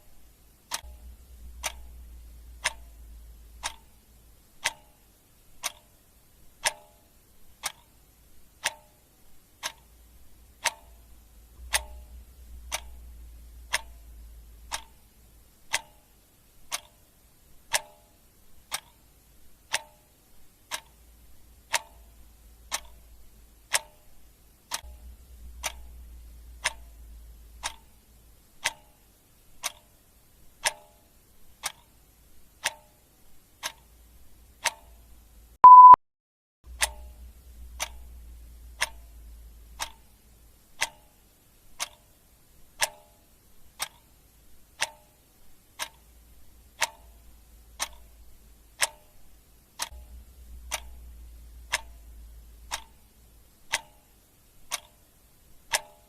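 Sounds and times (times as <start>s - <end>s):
clock ticking: 0.0s - 36.0s, 36.7s - 56.0s
short beep: 35.6s - 36.0s.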